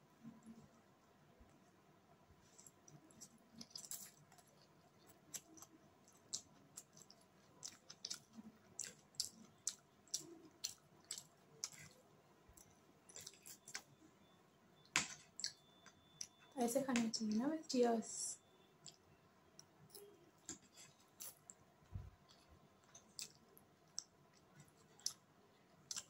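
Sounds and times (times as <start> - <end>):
person chewing noodles: 2.4 - 14.0, 14.8 - 16.4, 18.8 - 21.6, 22.2 - 26.0.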